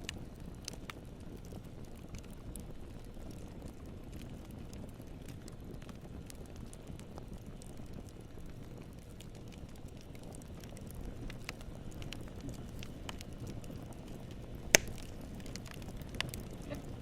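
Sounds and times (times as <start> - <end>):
campfire wood crackling: 0.0 - 17.0
low rumble of flames: 0.0 - 17.0
sharp pop of burning wood: 10.7 - 16.8.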